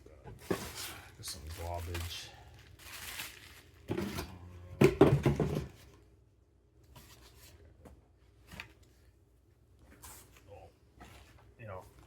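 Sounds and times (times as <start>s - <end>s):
packaging thunking and clattering: 3.0s - 5.8s.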